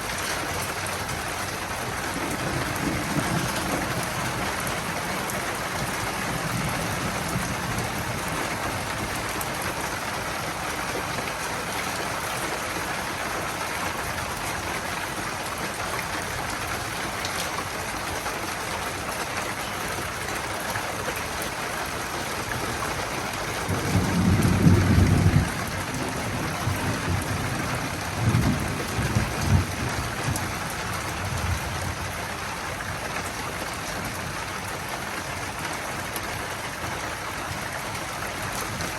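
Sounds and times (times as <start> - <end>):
steady rain hissing: 0.0 - 38.9
low rumble of thunder: 0.2 - 12.6, 22.5 - 34.9.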